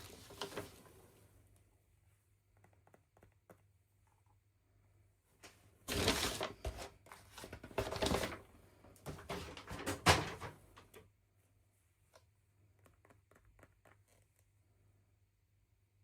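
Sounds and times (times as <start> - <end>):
packaging rustling and scraping: 0.0 - 0.9, 5.9 - 8.4.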